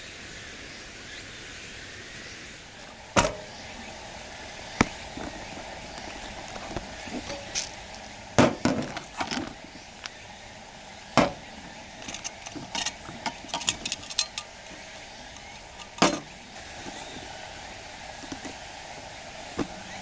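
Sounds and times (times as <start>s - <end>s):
camp gear knocks and clinks: 2.8s - 3.7s, 6.6s - 7.7s, 8.4s - 9.6s, 11.2s - 17.0s, 19.6s - 19.8s.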